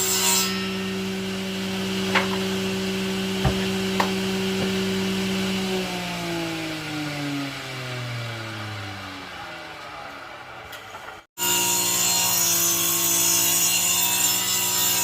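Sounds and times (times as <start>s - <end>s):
electric power tool humming: 0.0s - 9.2s.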